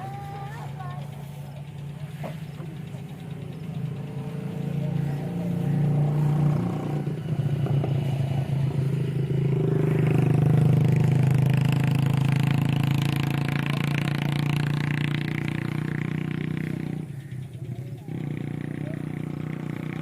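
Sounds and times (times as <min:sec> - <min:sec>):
tractor motor running: 0:00.0 - 0:20.0.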